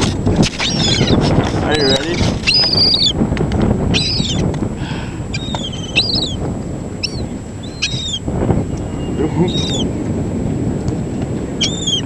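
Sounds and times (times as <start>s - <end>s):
seagulls calling: 0.0s - 3.2s, 3.9s - 9.9s, 11.6s - 12.0s.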